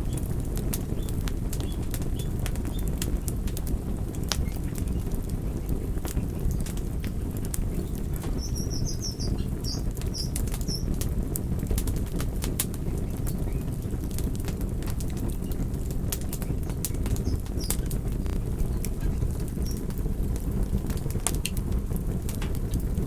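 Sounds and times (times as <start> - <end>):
campfire crackling and popping: 0.0 - 23.0
small bird chirping: 7.7 - 11.0, 16.3 - 18.0, 18.6 - 19.9.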